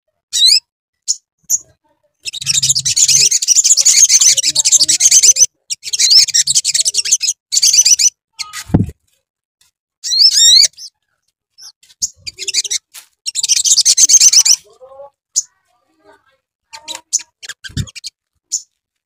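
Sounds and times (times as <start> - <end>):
sunbird chattering trills: 0.4 - 8.5, 11.6 - 14.8, 16.7 - 18.7.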